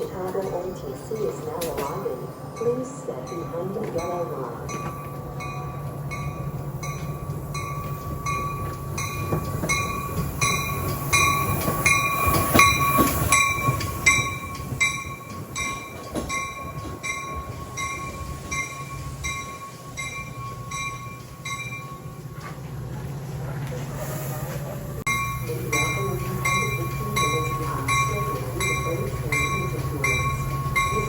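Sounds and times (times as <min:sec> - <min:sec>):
bell ringing: 0:00.0 - 0:22.5, 0:25.1 - 0:31.0
train locomotive humming: 0:00.0 - 0:31.0.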